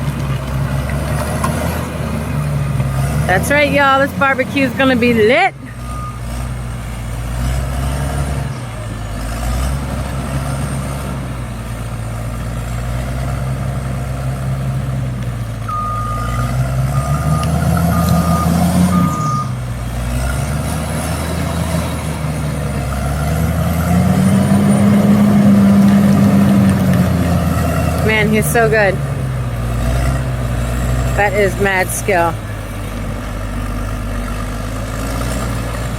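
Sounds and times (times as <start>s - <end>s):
bulldozer diesel engine: 0.0s - 35.9s
reversing beeps: 5.6s - 6.2s, 15.7s - 19.6s.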